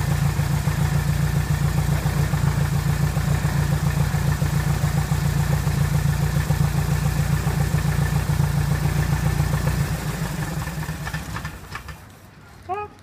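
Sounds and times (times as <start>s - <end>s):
piston aircraft engine idling: 0.0s - 12.3s.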